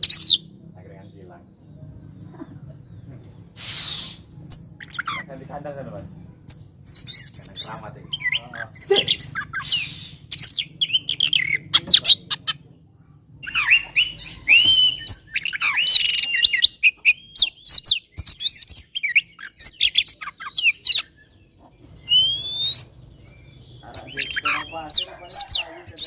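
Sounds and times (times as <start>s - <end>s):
bird singing rapid whistles and trills: 0.0s - 0.5s, 6.4s - 12.6s, 13.4s - 26.0s.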